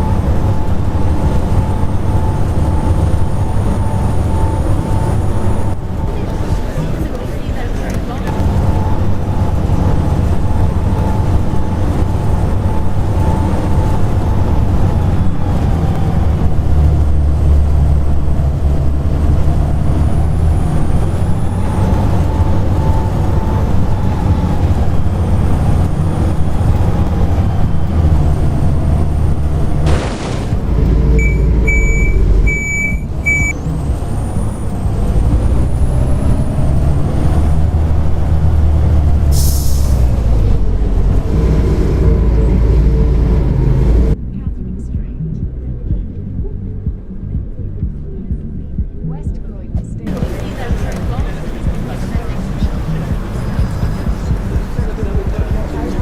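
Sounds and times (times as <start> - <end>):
bus diesel engine whine: 0.0 - 56.0
short electronic beeps: 31.1 - 33.6
air hiss: 39.4 - 40.0.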